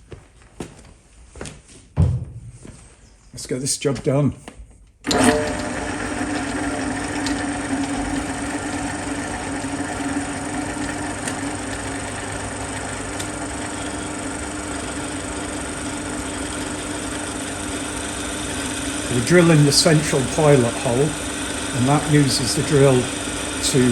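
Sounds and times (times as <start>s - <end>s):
drill motor hum: 5.1s - 23.9s.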